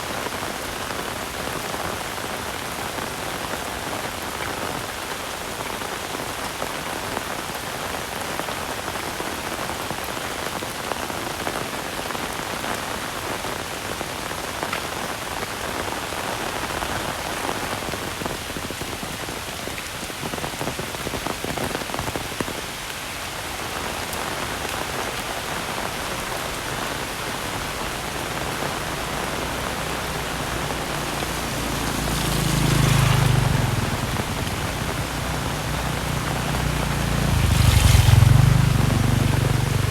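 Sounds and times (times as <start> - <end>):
heavy rain falling: 0.0 - 39.9
vehicle passing: 27.9 - 39.9.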